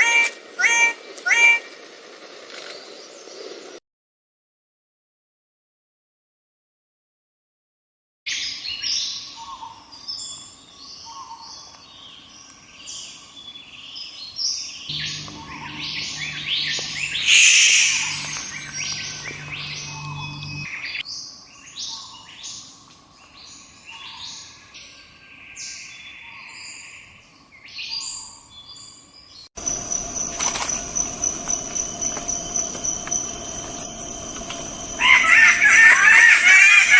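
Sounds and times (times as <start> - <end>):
small birds chirping: 8.5 - 36.9
harsh burst of bird calls: 14.9 - 21.0, 29.6 - 36.9
high-pitched whine: 14.9 - 21.0, 29.6 - 36.9.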